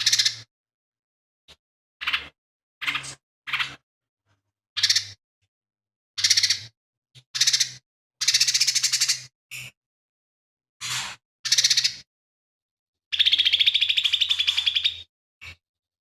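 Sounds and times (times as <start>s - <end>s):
bird singing rapid trills: 4.8s - 5.2s, 6.2s - 6.7s, 7.4s - 9.3s, 13.1s - 15.1s.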